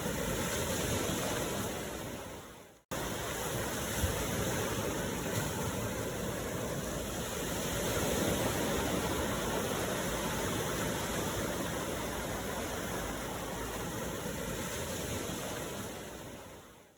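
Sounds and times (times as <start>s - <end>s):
ocean waves washing on shore: 0.0s - 16.9s.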